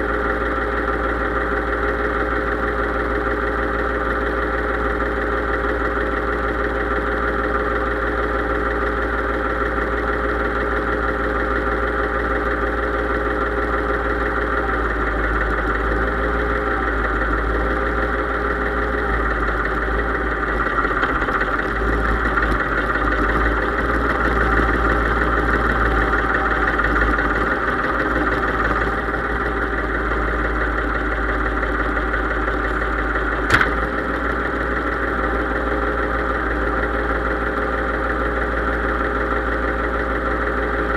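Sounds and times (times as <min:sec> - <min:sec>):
tractor diesel engine running: 0:00.0 - 0:40.9
sharp click: 0:33.4 - 0:34.0.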